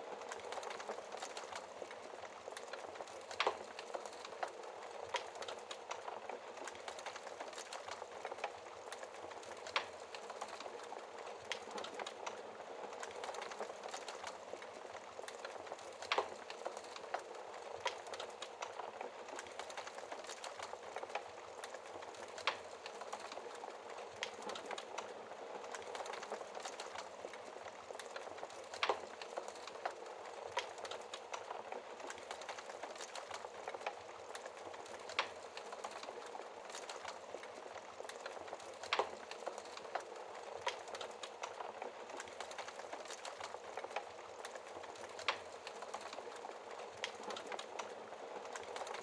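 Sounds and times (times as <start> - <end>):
wood fire crackling: 0.0 - 49.0
fire pops: 0.3 - 49.0.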